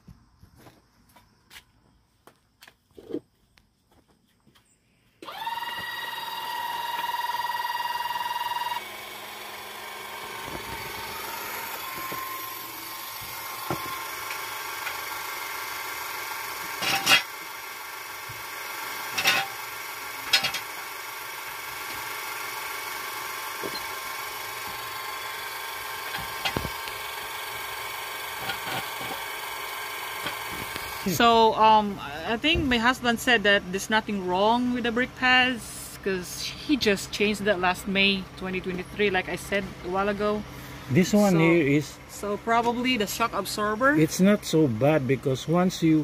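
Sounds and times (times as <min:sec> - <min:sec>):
metallic clanks of tools: 0:16.8 - 0:17.3, 0:19.1 - 0:19.6, 0:20.3 - 0:20.7.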